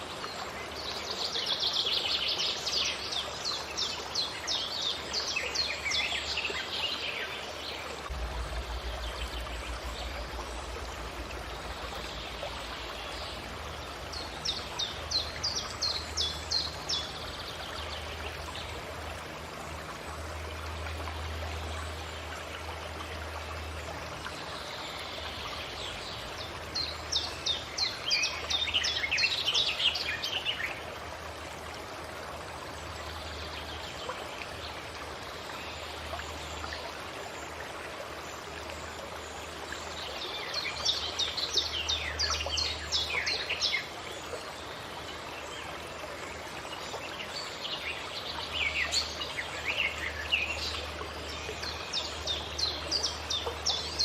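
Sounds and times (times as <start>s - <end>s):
steady rushing noise: 8.1s - 12.5s.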